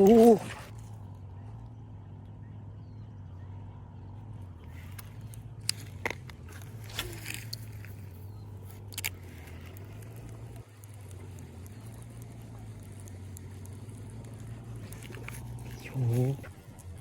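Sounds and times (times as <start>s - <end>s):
low mechanical hum: 0.0s - 17.0s
sharp clicks and ticks: 4.9s - 17.0s.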